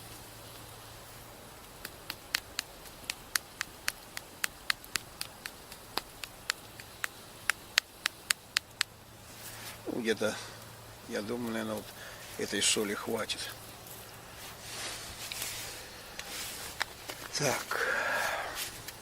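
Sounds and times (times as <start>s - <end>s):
salt clicking on vegetables: 1.6s - 9.0s.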